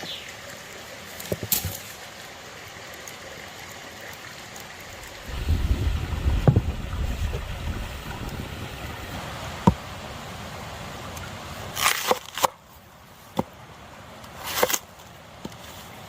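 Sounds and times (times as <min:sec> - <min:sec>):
stream flowing: 0:00.0 - 0:16.0.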